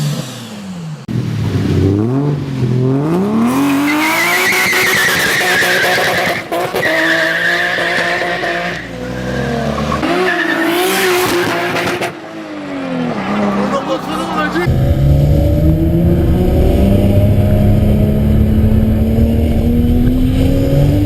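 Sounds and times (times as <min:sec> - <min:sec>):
car engine revving: 0:08.3 - 0:21.0.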